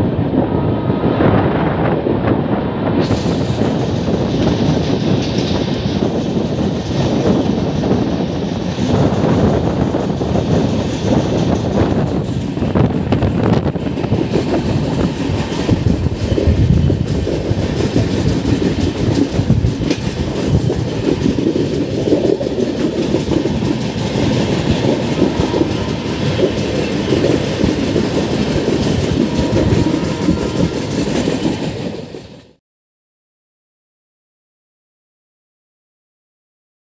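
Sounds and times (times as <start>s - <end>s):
train wheels rumbling on rails: 0.0s - 32.6s
clacks over rail joints: 3.1s - 32.5s.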